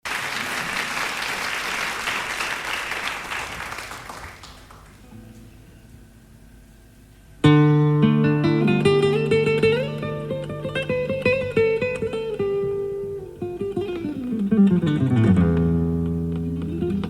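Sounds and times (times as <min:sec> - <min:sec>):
audience applause: 0:00.0 - 0:05.0
classical guitar chord: 0:07.4 - 0:17.0.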